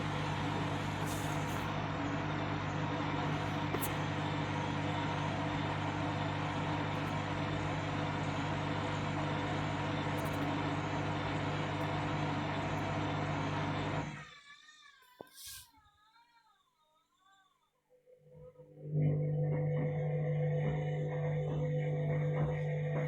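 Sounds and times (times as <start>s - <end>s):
washing machine spinning: 0.0s - 14.2s, 18.8s - 23.0s.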